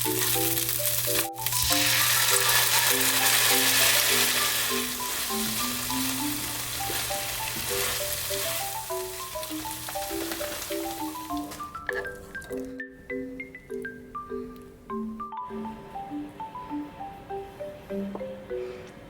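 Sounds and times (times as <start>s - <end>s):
food sizzling in frying pan: 0.0s - 11.7s
light plucked background music: 0.0s - 19.0s.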